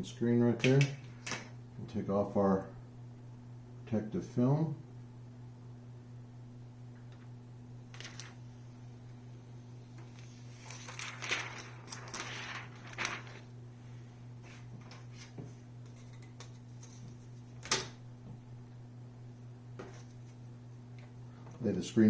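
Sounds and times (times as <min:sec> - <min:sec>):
steady low hum: 0:00.0 - 0:22.0
plastic film peeling: 0:10.0 - 0:13.5.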